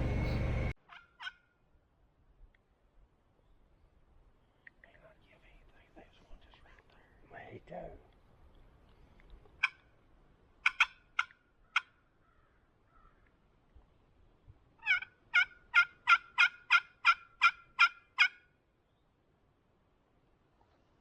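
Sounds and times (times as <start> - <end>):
wild turkey yelps: 0.8 - 1.5, 9.6 - 9.9, 10.6 - 13.3, 14.8 - 18.5.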